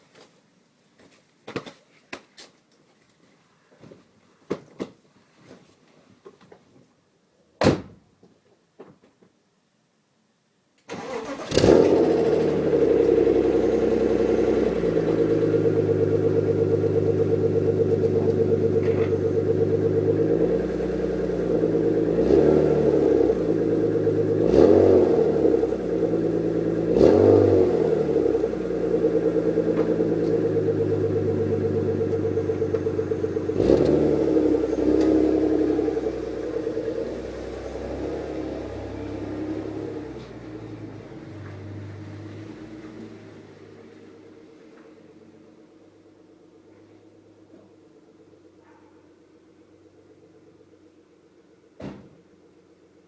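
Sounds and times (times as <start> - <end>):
car engine starting and idling: 10.9 - 53.0.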